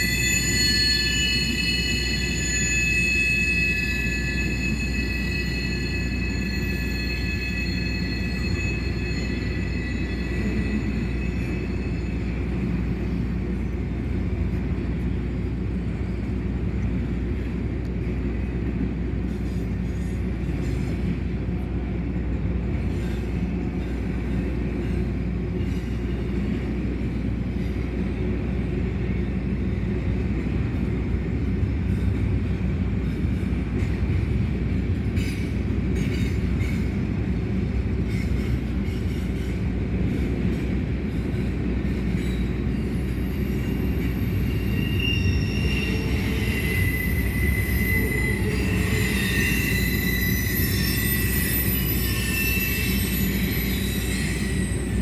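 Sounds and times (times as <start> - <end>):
high wheel squeal: 0.0 - 13.3, 41.1 - 55.0
train wheels rumbling on rail: 0.0 - 55.0.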